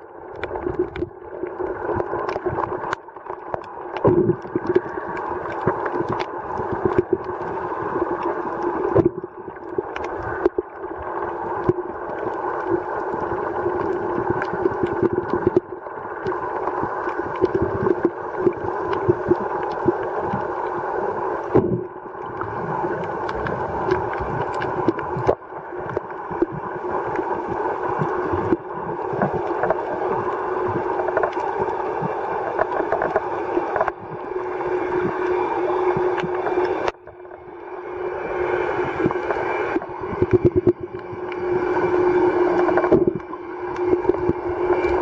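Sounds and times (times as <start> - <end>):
underwater droning hum: 0.0 - 45.0
sharp clicks and crackles: 0.3 - 10.8, 21.4 - 34.0, 36.2 - 37.0.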